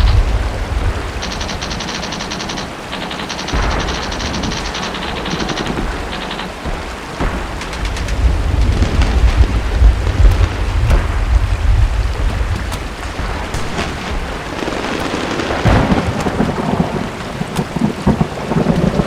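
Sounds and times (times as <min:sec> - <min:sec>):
low rumble of thunder: 0:00.0 - 0:19.0
steady rain: 0:00.0 - 0:19.0
automatic gunfire: 0:13.5 - 0:17.0.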